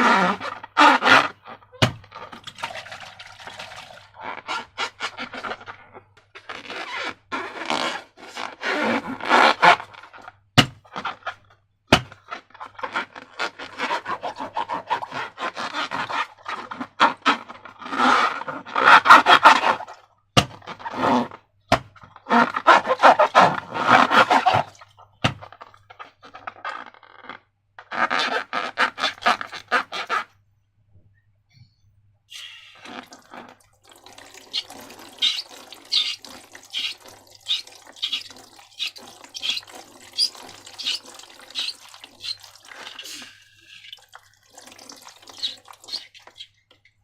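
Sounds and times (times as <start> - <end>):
slime squelching and crackling: 32.8 - 46.7.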